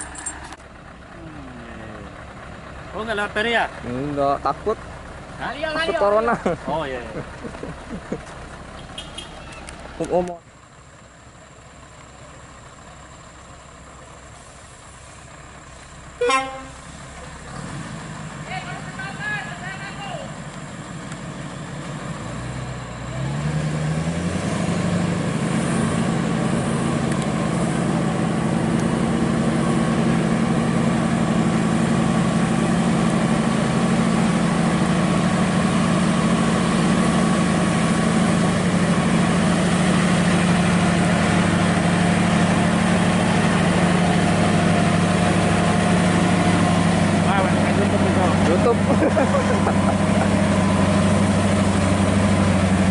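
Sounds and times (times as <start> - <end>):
diesel truck engine revving: 0.0 - 10.7, 11.5 - 52.9.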